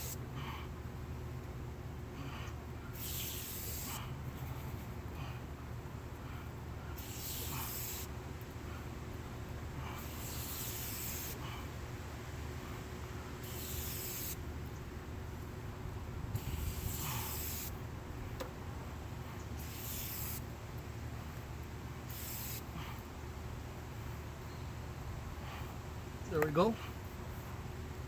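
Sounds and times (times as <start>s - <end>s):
spray can hissing: 3.0s - 4.0s, 7.0s - 8.1s, 10.0s - 11.4s, 13.4s - 14.4s, 16.4s - 17.8s, 19.6s - 20.4s, 22.1s - 22.7s.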